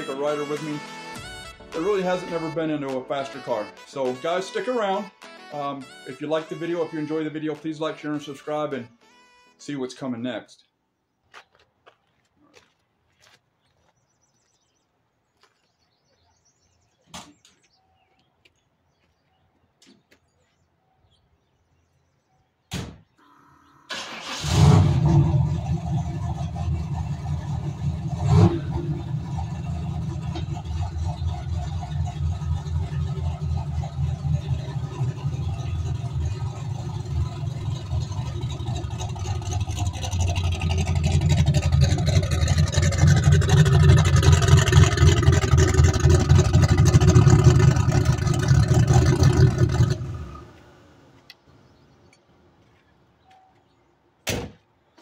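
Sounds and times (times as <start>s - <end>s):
car engine starting and idling: 23.2s - 51.8s.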